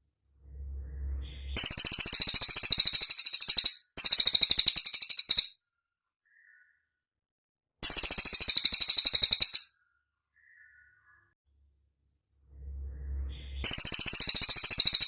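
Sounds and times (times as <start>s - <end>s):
songbird high-pitched trill: 1.0s - 5.5s, 7.8s - 9.7s, 13.1s - 15.0s
faint short bird call: 6.2s - 6.9s.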